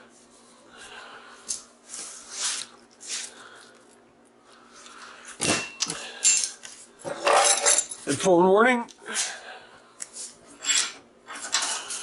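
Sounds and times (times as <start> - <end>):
metal parts scraping on workbench: 5.6 - 8.0, 10.6 - 12.0.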